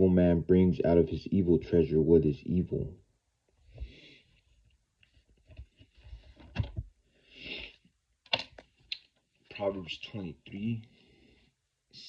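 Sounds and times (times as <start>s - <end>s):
soft breaths: 3.6s - 8.0s, 10.7s - 11.8s.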